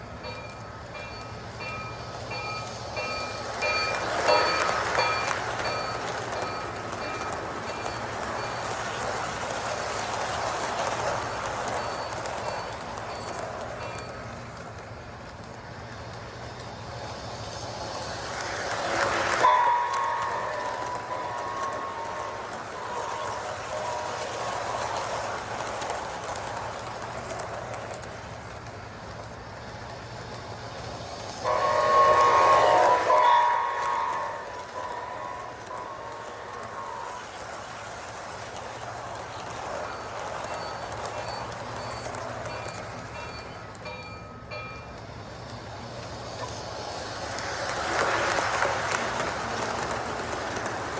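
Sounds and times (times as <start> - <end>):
model train rumbling on track: 0.0 - 50.9
electronic train horn: 31.4 - 37.3.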